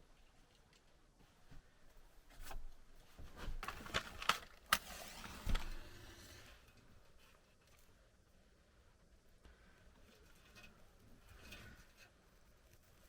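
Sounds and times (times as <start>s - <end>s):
objects handled and set down: 2.3s - 6.1s.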